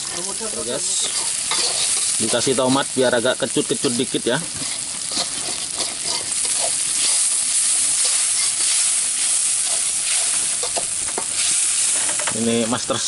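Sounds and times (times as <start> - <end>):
vegetables sizzling in a wok: 0.0 - 13.0
metal spatula scraping pan: 0.9 - 2.6, 3.8 - 12.3.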